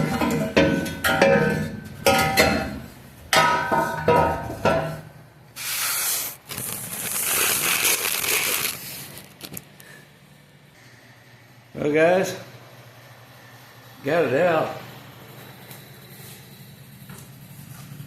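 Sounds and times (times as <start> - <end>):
metal pipe clanking: 0.0 - 5.2.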